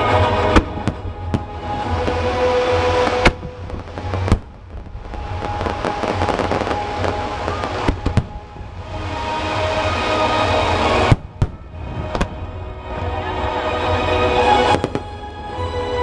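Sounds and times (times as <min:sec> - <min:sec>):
fireworks bangs: 0:00.0 - 0:12.5
fireworks crackling: 0:00.0 - 0:12.6, 0:14.4 - 0:15.2.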